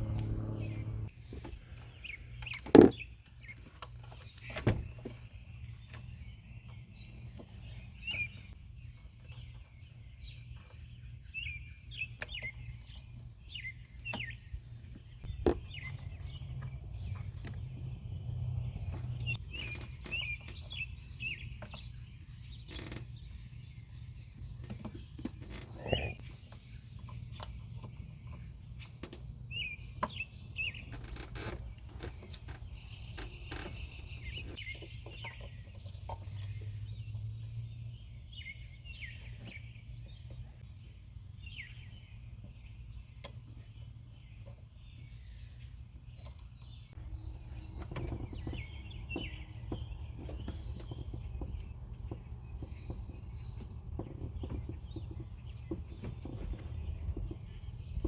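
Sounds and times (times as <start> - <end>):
low rumble: 0.0 - 1.1
small birds chirping: 0.0 - 58.0.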